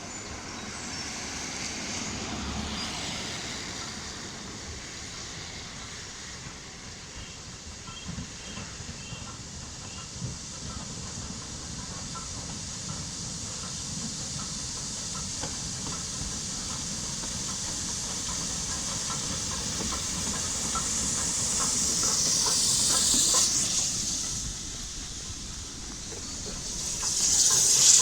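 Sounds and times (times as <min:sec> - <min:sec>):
steam hissing: 0:00.0 - 0:28.0.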